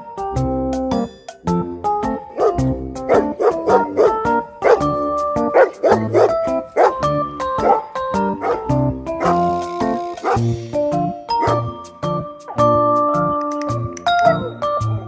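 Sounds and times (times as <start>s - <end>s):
background music with beat: 0.0s - 15.0s
dog barking: 2.3s - 4.9s, 5.5s - 7.0s, 7.6s - 9.5s, 10.2s - 10.4s, 11.4s - 11.6s.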